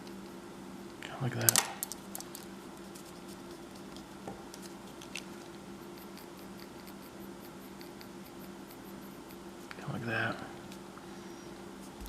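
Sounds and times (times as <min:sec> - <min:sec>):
faint steady hum: 0:00.0 - 0:12.0
pencil scratching on paper: 0:05.8 - 0:09.7.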